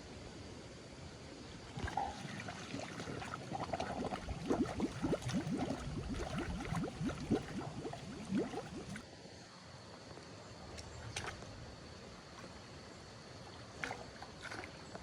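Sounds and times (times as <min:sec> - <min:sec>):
water gurgling and glugging: 0:01.6 - 0:09.1, 0:13.7 - 0:15.0.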